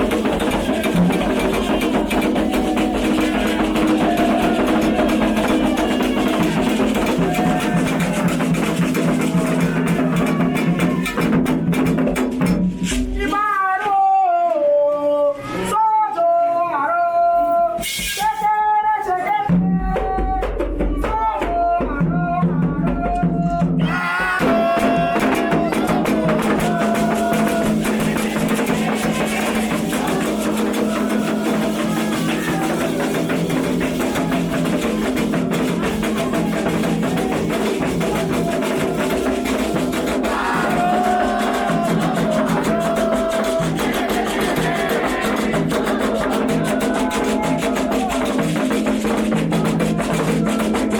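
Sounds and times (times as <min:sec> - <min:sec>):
person chanting alone: 0:00.0 - 0:11.2, 0:21.2 - 0:48.4
group of voices chanting: 0:00.0 - 0:12.2, 0:23.4 - 0:50.9
drum strokes: 0:00.0 - 0:13.2, 0:22.0 - 0:50.9.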